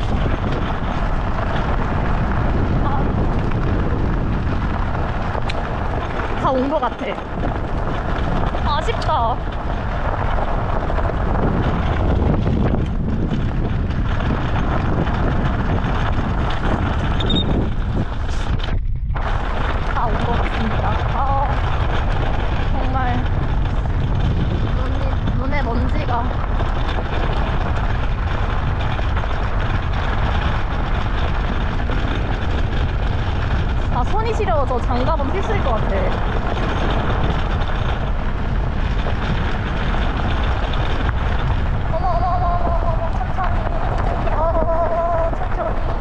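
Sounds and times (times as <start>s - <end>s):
cart rolling on rough track: 0.0s - 46.0s
wind buffeting microphone: 0.0s - 46.0s.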